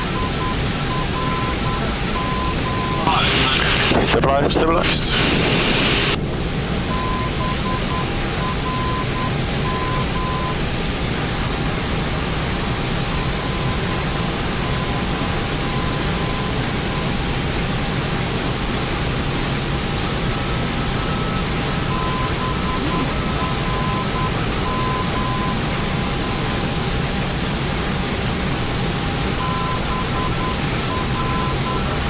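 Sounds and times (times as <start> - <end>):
faint beeping tones: 0.0 - 3.6, 6.9 - 10.6, 20.5 - 26.5, 29.4 - 32.0.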